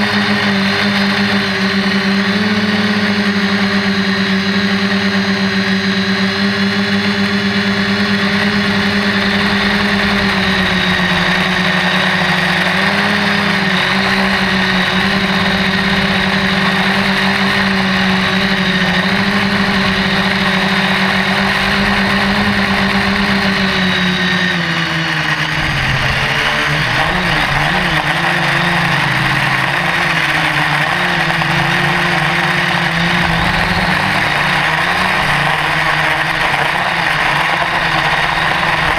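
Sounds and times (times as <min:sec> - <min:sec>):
drone propellers humming: 0:00.0 - 0:38.9.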